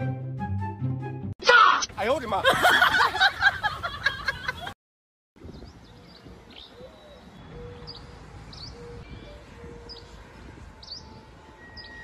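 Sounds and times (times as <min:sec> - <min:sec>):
music: 0:00.0 - 0:01.4
voice: 0:01.4 - 0:02.6.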